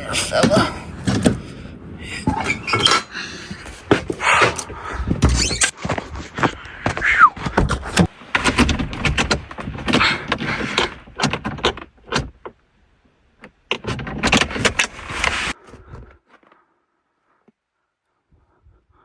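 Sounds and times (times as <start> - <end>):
knocks clunks and rattles: 0.0 - 12.6
short falling squeak: 2.2 - 3.1, 5.3 - 5.7.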